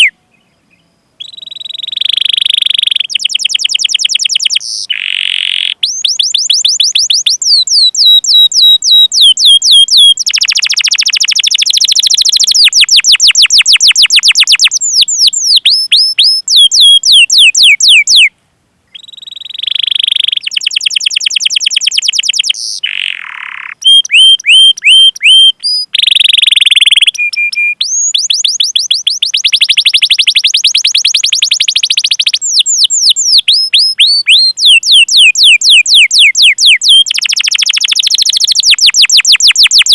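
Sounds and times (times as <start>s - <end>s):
canary singing: 0.0s - 18.3s, 18.9s - 39.9s.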